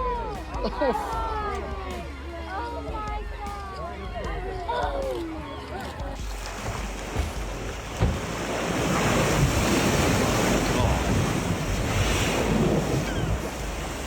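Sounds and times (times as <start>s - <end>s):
wind buffeting microphone: 6.0s - 14.0s
ocean waves rushing: 6.2s - 14.0s
single knock: 8.0s - 8.2s.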